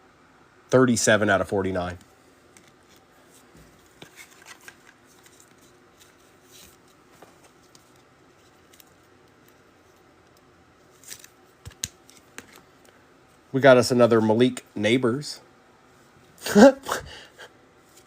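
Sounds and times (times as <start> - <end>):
soft clicks of card handling: 1.9 - 13.4
light packaging rustles: 2.6 - 10.0.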